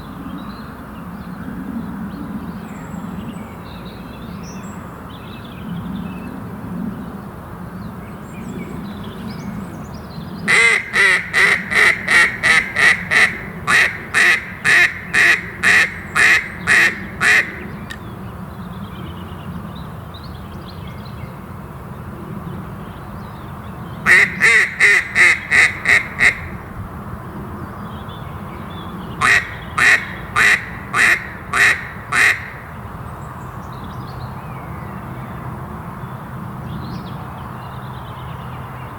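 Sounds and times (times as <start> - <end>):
duck quacking: 10.5 - 17.6, 24.1 - 26.5, 29.2 - 32.6.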